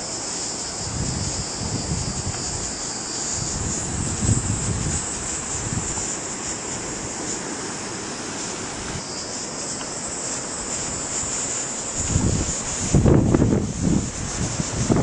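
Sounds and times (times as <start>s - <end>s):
insects droning: 0.0s - 15.0s
wind buffeting microphone: 0.8s - 6.2s, 10.9s - 15.0s
wind rushing: 0.8s - 6.2s, 10.8s - 15.0s.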